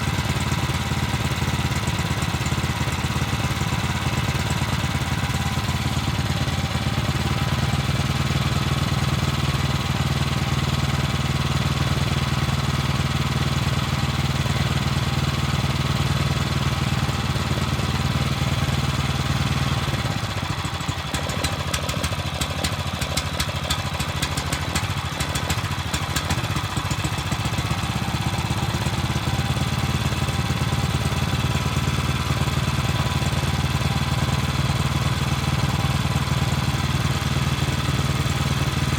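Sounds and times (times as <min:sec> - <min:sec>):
petrol engine running: 0:00.0 - 0:38.9.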